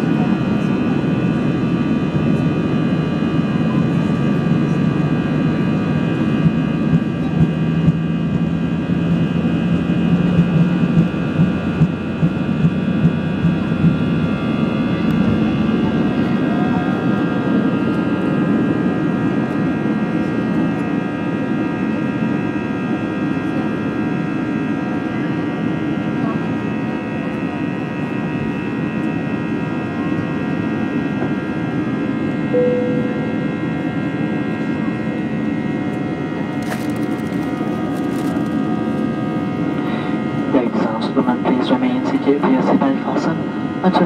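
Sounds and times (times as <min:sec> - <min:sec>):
jet engines roaring: 0:00.0 - 0:21.4, 0:32.9 - 0:44.0
whining engine tones: 0:00.2 - 0:18.8, 0:32.3 - 0:37.9.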